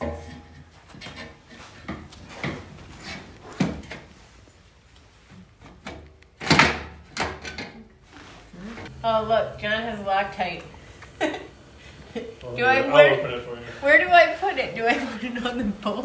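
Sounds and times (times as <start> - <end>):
metal pipes scraping and knocking: 0.0 - 4.5.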